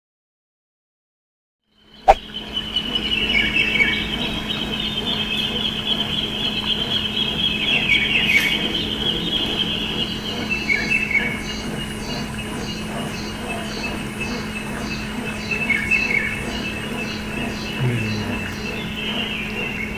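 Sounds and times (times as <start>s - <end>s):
steady low hum: 16.8s - 19.9s.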